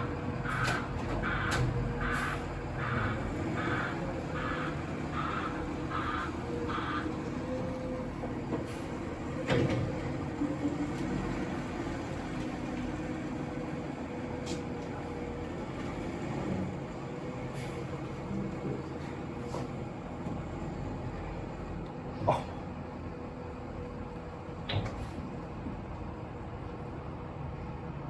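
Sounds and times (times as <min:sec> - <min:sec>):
garbage truck running: 0:00.0 - 0:28.0.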